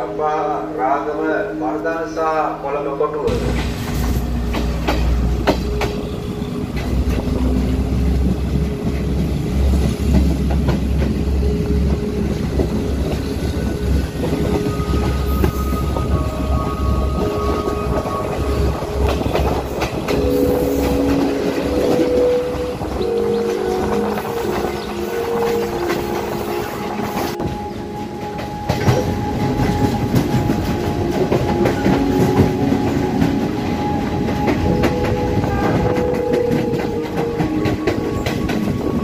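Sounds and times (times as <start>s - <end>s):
train rumble: 1.9s - 39.0s
wheels clacking over rail joints: 3.3s - 16.1s.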